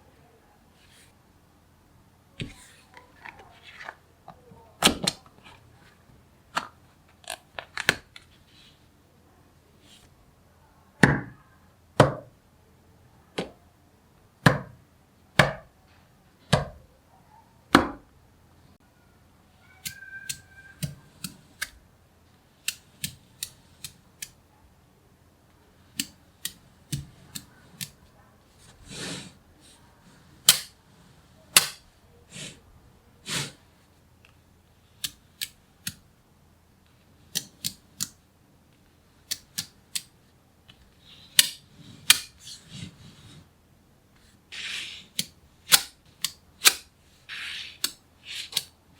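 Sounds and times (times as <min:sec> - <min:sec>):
magnet balls snapping together: 0:45.2 - 0:46.9.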